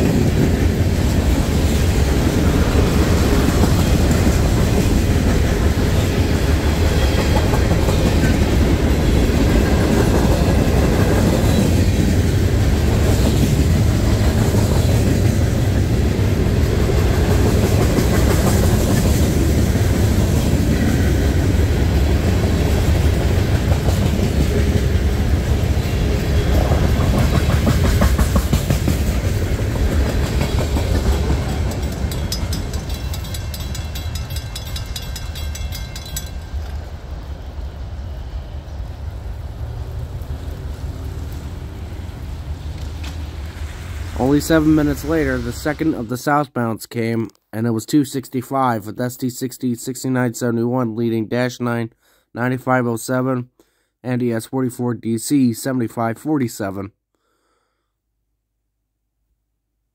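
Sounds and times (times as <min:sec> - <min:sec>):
wheels clacking on rails: 0:00.0 - 0:45.9
freight train rumbling: 0:00.0 - 0:46.5.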